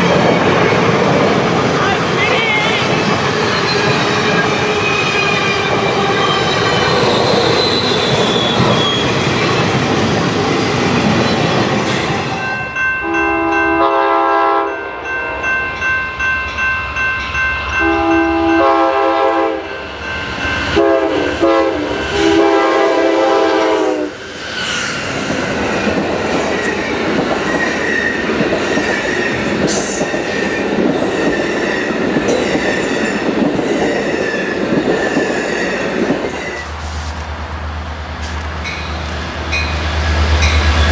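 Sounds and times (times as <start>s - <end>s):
train wheels rolling and clattering: 0.0s - 12.9s, 23.8s - 40.9s
train horn blasts: 13.0s - 15.0s, 17.8s - 19.8s, 20.7s - 24.2s.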